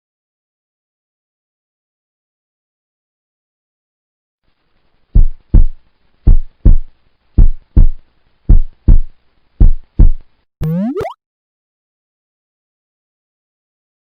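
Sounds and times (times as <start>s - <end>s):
electronic heartbeat thumps: 5.2s - 11.2s.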